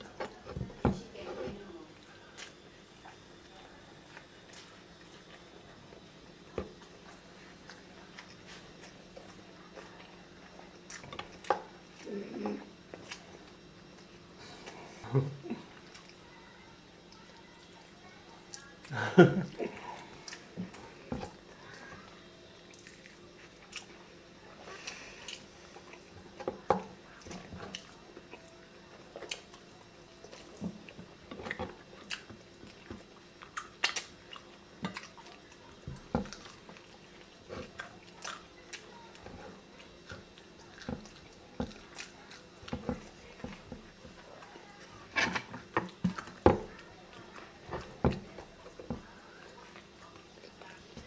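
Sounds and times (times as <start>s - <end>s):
chewing and mouth smacks: 12.9s - 14.8s, 22.6s - 24.0s, 27.1s - 29.6s, 30.2s - 42.8s.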